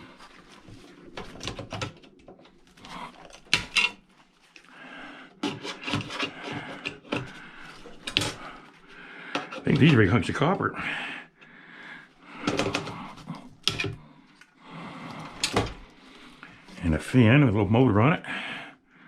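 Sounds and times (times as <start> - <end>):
metal parts and tools clanking: 1.1 - 4.0, 12.4 - 14.0.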